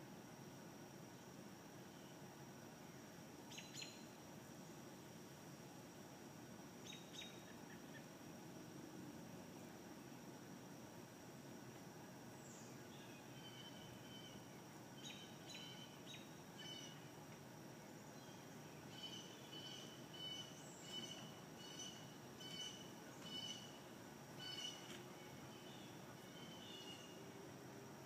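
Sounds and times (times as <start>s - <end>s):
bird chirping: 18.2s - 23.8s, 24.4s - 27.2s.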